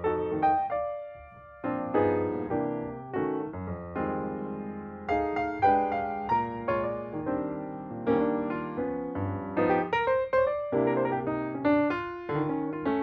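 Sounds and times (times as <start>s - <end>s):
gentle piano chords and notes: 0.0s - 13.0s.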